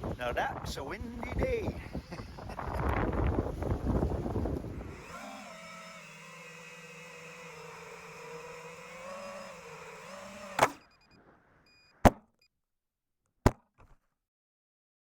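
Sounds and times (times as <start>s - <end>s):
drone motors whining: 0.9s - 12.0s.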